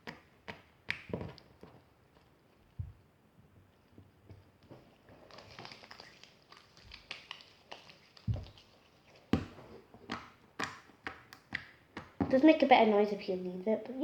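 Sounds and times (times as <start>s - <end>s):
slime squeezed by hand: 5.2s - 11.6s.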